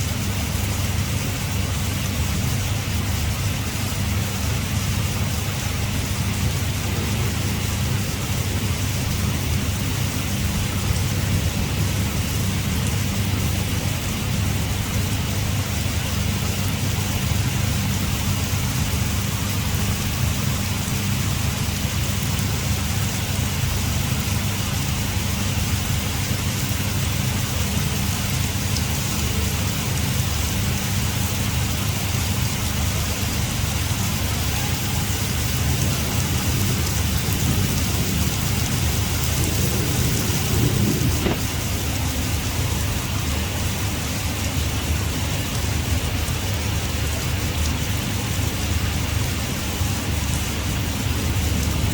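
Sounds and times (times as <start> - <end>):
heavy rain pouring: 0.0 - 51.9
low rumble: 35.2 - 43.9.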